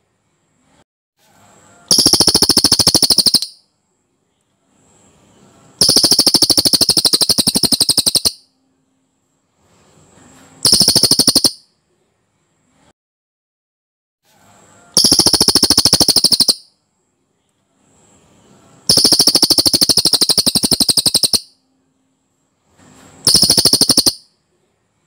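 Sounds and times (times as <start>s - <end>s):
songbird fast rolling trill: 1.9s - 3.6s, 5.8s - 8.4s, 10.6s - 11.6s, 15.0s - 16.7s, 18.9s - 21.6s, 23.2s - 24.2s.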